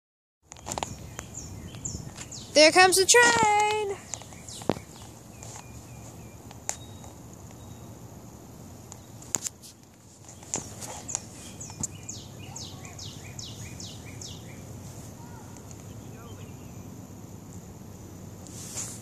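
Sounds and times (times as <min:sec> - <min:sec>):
songbird whistling: 0:04.0 - 0:08.0, 0:11.0 - 0:14.6.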